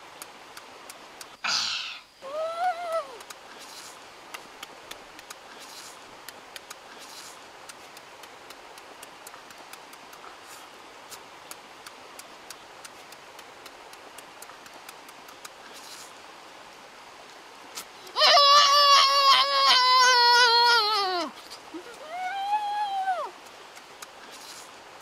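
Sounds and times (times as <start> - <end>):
wet chewing smacks: 3.2 - 16.1, 23.4 - 24.7.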